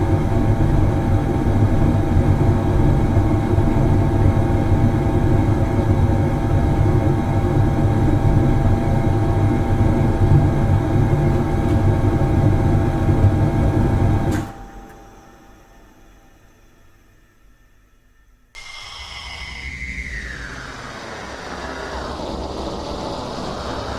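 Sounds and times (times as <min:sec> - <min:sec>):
factory machine droning: 0:18.6 - 0:23.9.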